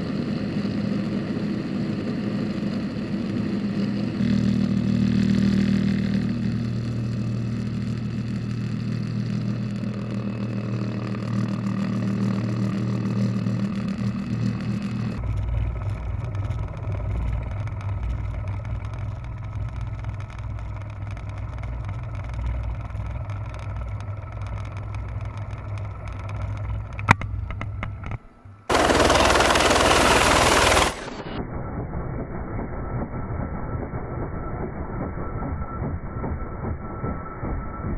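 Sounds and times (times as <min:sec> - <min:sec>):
helicopter engine and rotor drone: 0:00.0 - 0:07.0, 0:09.7 - 0:15.2, 0:28.7 - 0:31.4.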